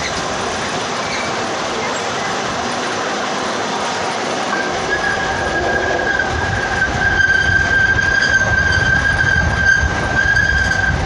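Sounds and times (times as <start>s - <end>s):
train cars rumbling: 0.0s - 11.0s
train wheels squealing: 4.5s - 11.0s.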